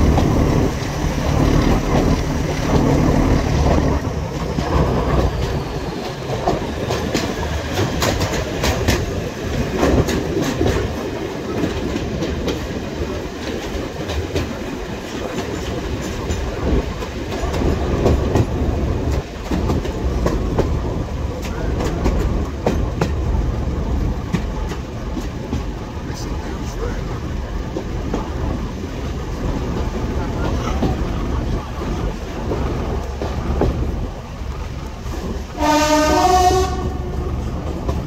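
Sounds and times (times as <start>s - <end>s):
train running rumble: 0.0s - 38.0s
wheels clicking over rail joints: 0.0s - 38.0s.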